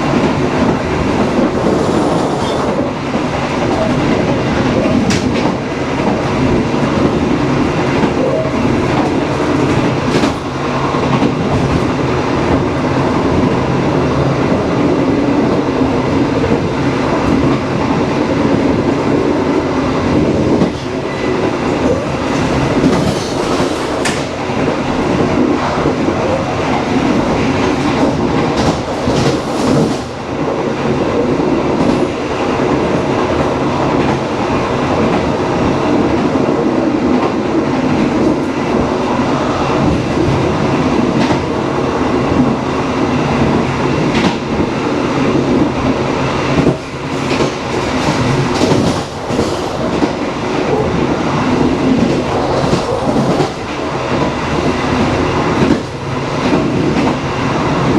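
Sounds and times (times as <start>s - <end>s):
train rumbling: 0.0s - 57.9s
wheels clacking over rail joints: 45.8s - 57.9s.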